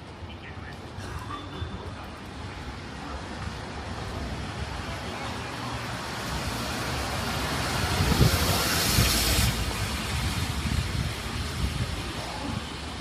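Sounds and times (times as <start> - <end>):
city street traffic: 0.0 - 13.0
vehicle passing close: 5.8 - 11.4.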